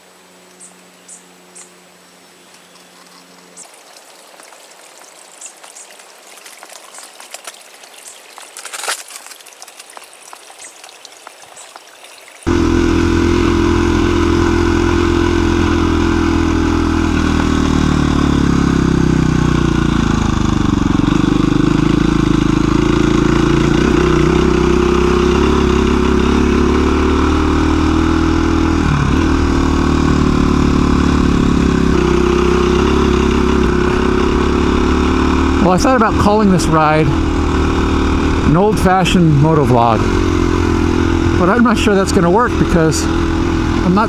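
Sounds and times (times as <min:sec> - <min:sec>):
motorcycle engine running: 0:12.4 - 0:44.0.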